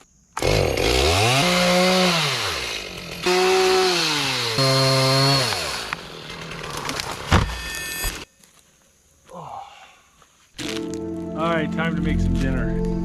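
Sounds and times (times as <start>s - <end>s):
chainsaw engine revving: 0.4s - 7.3s.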